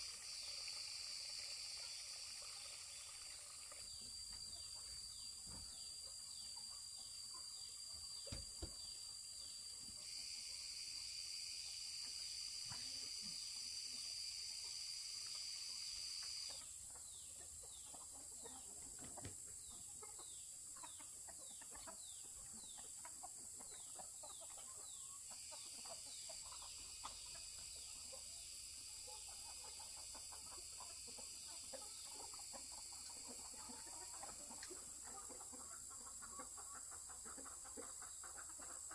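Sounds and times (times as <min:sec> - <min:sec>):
steady high hiss: 0:00.0 - 0:05.4, 0:07.2 - 0:18.3
chickens clucking: 0:00.0 - 0:38.9.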